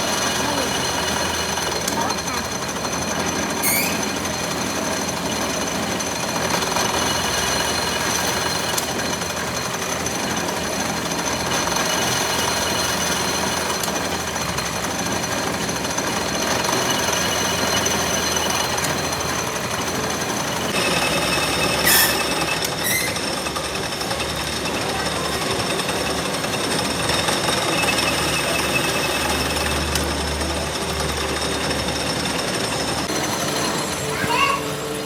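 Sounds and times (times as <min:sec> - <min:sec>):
metalworking machinery noise: 0:00.0 - 0:35.0
high steady tones: 0:02.1 - 0:05.2
short rising squeal: 0:03.6 - 0:04.4, 0:20.8 - 0:23.4.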